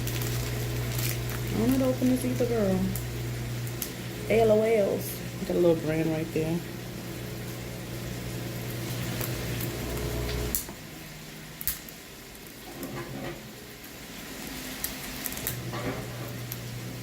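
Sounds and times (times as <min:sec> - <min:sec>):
plastic packaging crinkling: 0:00.0 - 0:03.0, 0:14.4 - 0:15.7
steady low hum: 0:00.0 - 0:10.6.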